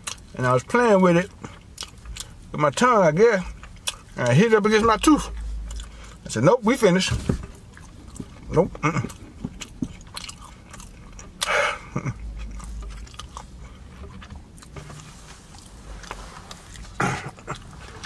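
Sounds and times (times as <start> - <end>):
person chewing and biting food: 0.0 - 0.4, 1.3 - 6.3, 7.4 - 18.0.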